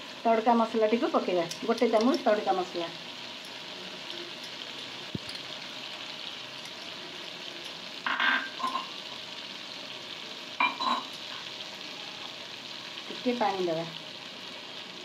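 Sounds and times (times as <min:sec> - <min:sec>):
masala sizzling in hot oil: 0:00.0 - 0:15.0.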